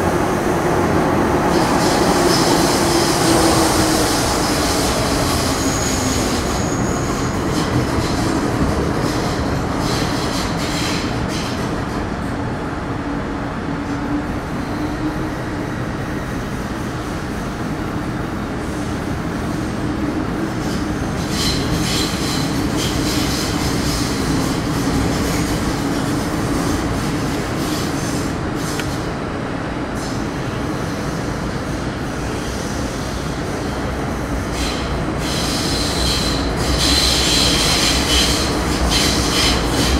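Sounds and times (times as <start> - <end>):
train wheel rumble on rail: 0.0 - 39.9
high-pitched wheel squeal: 5.3 - 7.4.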